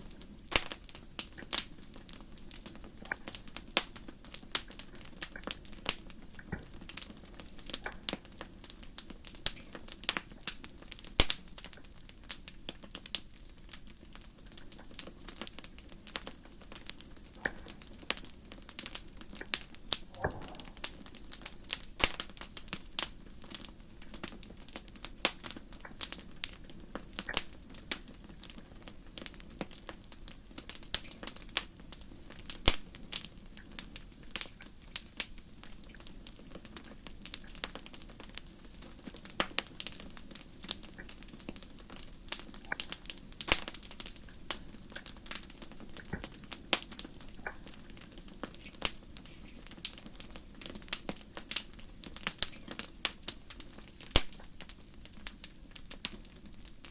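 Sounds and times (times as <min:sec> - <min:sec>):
wood fire popping and snapping: 0:00.0 - 0:56.9
low rush of burning: 0:15.5 - 0:23.1.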